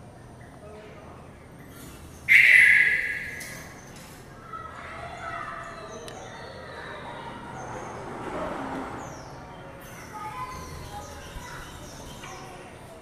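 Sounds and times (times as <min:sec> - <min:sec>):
bird harsh calls: 0:01.6 - 0:04.1.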